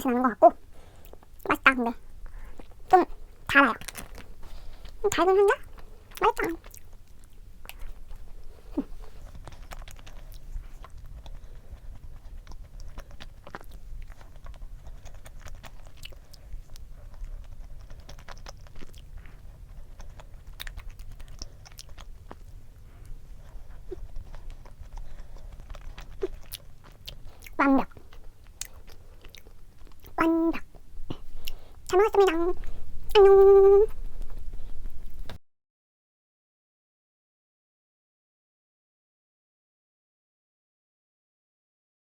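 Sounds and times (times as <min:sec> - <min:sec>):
soft chewing: 0:00.0 - 0:35.4
small mouth clicks: 0:02.2 - 0:35.4.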